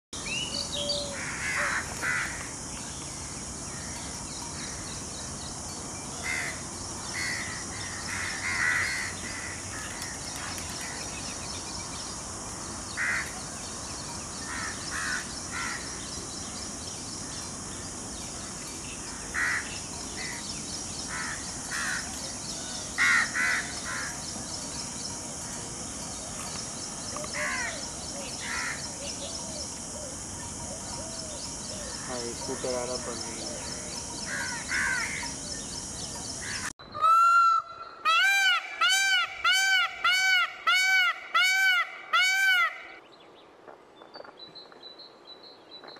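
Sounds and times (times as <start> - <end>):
steady high hiss: 0.2 - 36.8
birds giving harsh calls: 30.7 - 35.4, 36.4 - 43.0.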